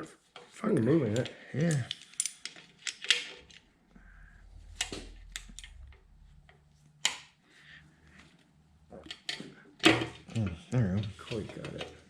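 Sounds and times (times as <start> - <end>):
low rumble: 3.2 - 8.9.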